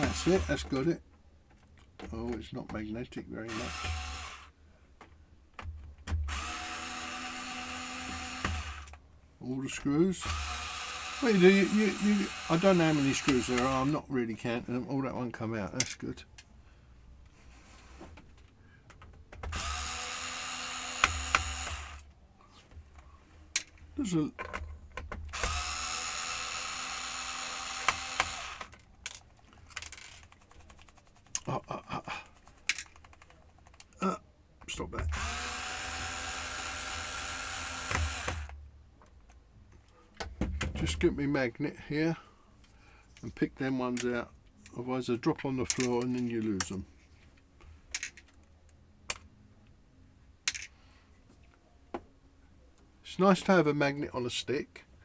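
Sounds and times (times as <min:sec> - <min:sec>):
electric screwdriver whining: 0:00.0 - 0:00.7, 0:03.5 - 0:04.5, 0:06.3 - 0:09.0, 0:10.2 - 0:14.0, 0:19.4 - 0:22.1, 0:25.3 - 0:28.8, 0:35.1 - 0:38.6
handling of small parts: 0:17.2 - 0:31.5, 0:44.5 - 0:49.3, 0:50.5 - 0:51.6
screws clicking onto magnetic tool: 0:19.5 - 0:22.0, 0:25.3 - 0:28.8.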